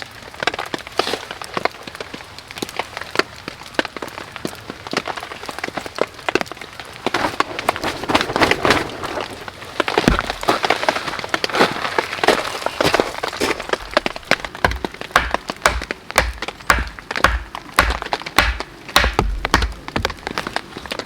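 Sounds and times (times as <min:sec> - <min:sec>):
dry wood crackling: 0:00.0 - 0:21.0
rain pattering: 0:00.0 - 0:21.0
dull thud: 0:10.0 - 0:10.7, 0:12.9 - 0:20.4.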